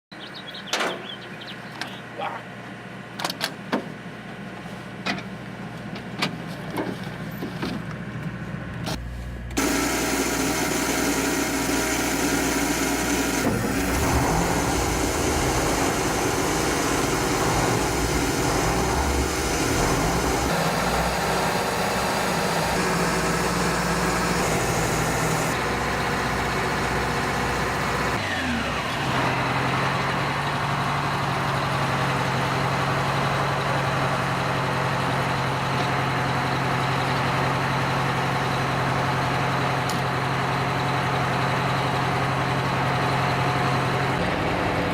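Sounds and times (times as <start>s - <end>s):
heavy truck engines idling: 12.1s - 44.9s.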